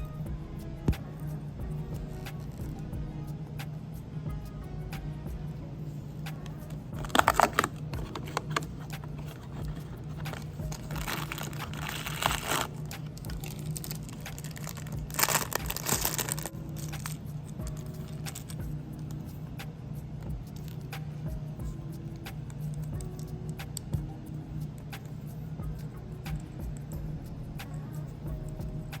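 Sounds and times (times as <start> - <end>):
steady low hum: 0.0 - 29.0
plastic packaging crinkling: 7.0 - 17.2.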